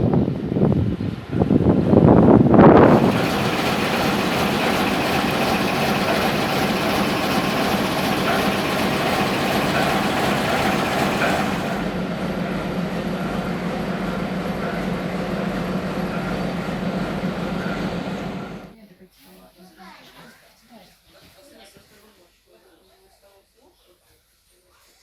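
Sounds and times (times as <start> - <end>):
moving train running noise: 0.0 - 18.8.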